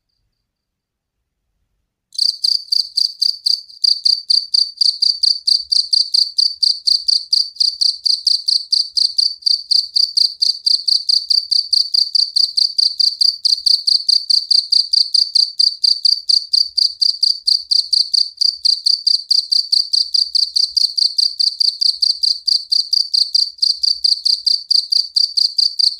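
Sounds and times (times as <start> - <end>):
field cricket chirping rapidly: 2.2 - 25.9.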